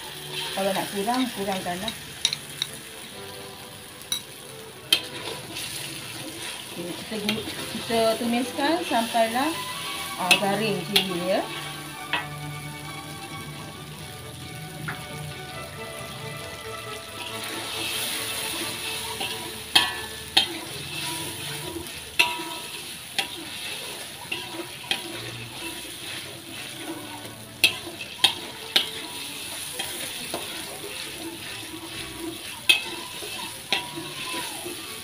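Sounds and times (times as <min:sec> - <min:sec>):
chilli paste sizzling in wok: 0:00.0 - 0:35.0
metal spatula clacking on wok: 0:04.1 - 0:05.4, 0:10.2 - 0:12.4, 0:19.1 - 0:34.8.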